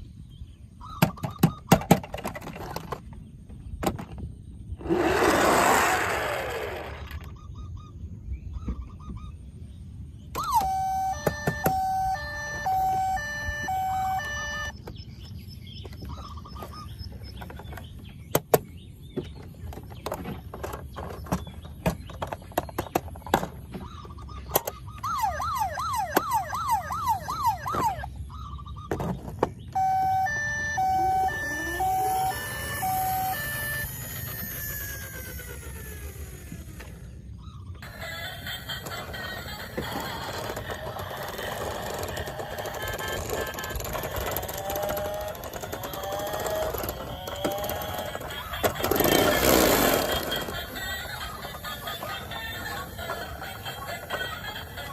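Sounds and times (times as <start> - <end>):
plastic toys clicking and knocking: 1.0 - 3.2, 10.4 - 13.0, 19.3 - 23.8, 24.5 - 24.9, 38.6 - 54.9
toy siren beeping and warbling: 10.3 - 14.8, 24.3 - 29.0, 29.7 - 36.8, 37.8 - 54.9.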